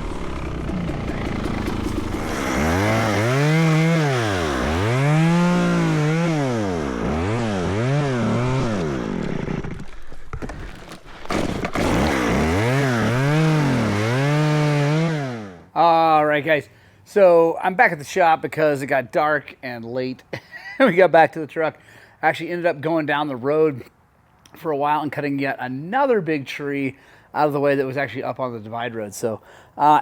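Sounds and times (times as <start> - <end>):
chainsaw revving: 0.0 - 9.9, 11.2 - 15.7.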